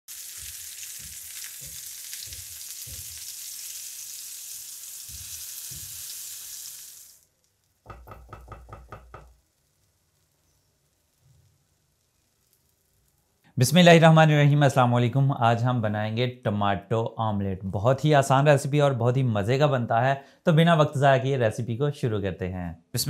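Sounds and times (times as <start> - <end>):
oil sizzling in a frying pan: 0.1 - 13.4
spatula knocking on a pan: 0.3 - 3.2, 5.1 - 6.0, 7.9 - 9.4
rhythmic taps: 0.4 - 3.2, 7.9 - 9.3.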